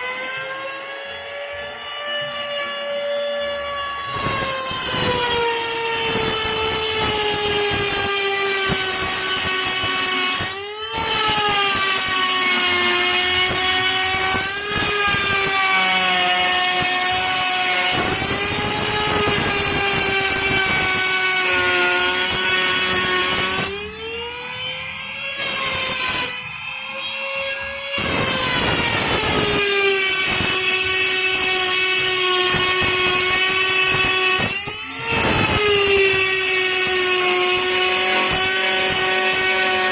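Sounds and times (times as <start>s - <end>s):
wood router motor whine: 0.0s - 39.9s.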